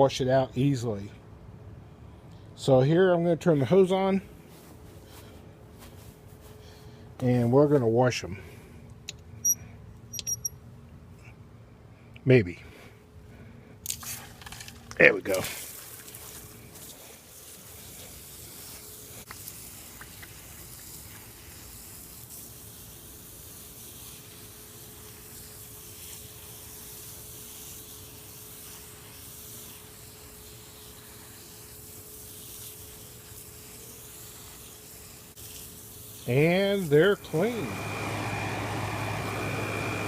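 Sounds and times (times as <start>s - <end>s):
hose spraying water on mesh: 15.3s - 40.0s.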